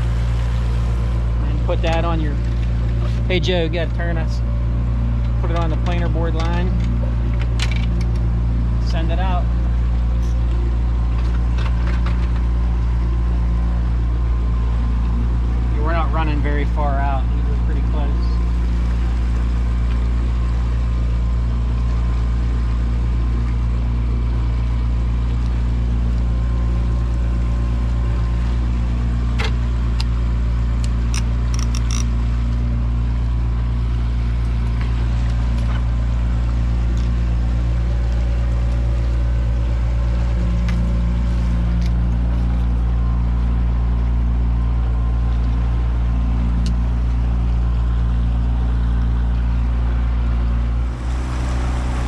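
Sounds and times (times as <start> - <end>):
boat motor humming: 0.0 - 52.0.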